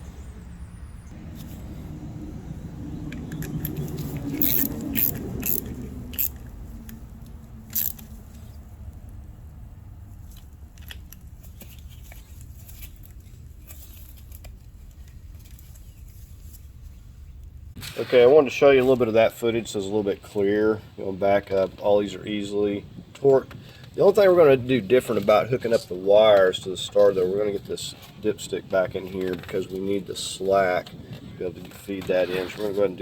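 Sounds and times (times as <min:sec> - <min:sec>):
low steady rumble: 0:00.0 - 0:17.8
handling noise: 0:01.1 - 0:17.0
metallic clicks of hand tools: 0:04.4 - 0:07.0, 0:07.7 - 0:08.1.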